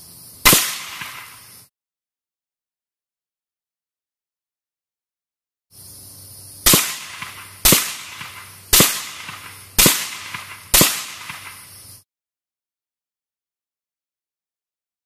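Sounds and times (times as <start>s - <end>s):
suppressed gunshots with echo: 0.4s - 1.4s, 6.6s - 11.7s.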